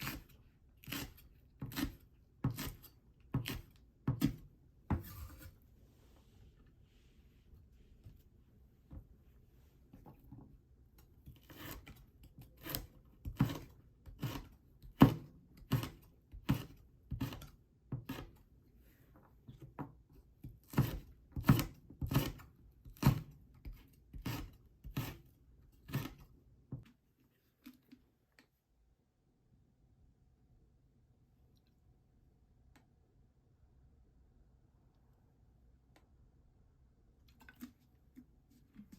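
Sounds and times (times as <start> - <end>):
knife cutting food: 0.0 - 5.5, 11.3 - 18.4, 20.6 - 26.3.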